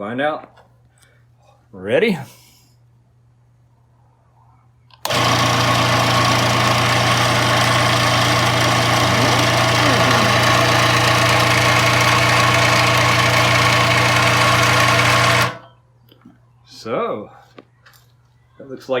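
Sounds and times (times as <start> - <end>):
scroll saw motor humming: 5.0 - 15.6.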